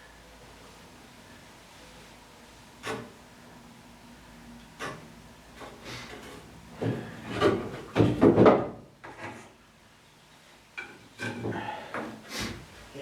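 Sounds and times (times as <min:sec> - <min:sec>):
wooden boards scraping and knocking: 0:06.8 - 0:09.5.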